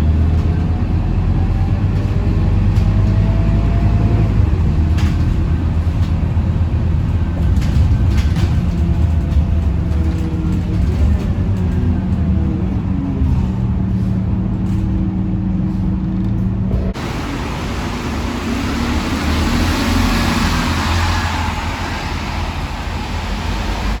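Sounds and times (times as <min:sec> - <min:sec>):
bus diesel engine humming: 0:00.0 - 0:24.0
road noise hiss: 0:15.6 - 0:24.0.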